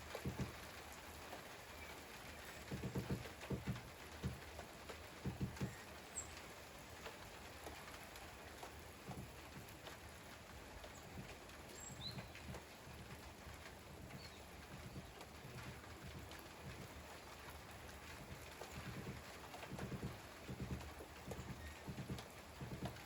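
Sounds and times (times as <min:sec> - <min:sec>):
drips tapping softly: 0:00.0 - 0:23.0
steady rain falling: 0:00.0 - 0:23.0.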